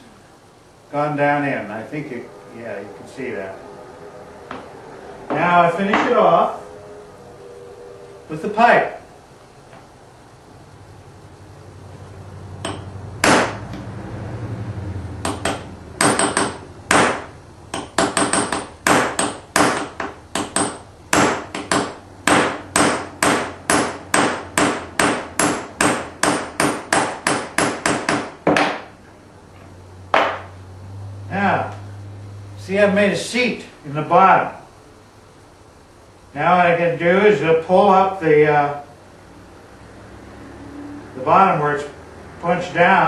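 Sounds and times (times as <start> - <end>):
hammer striking metal pipe: 12.6 - 13.6, 15.2 - 28.2.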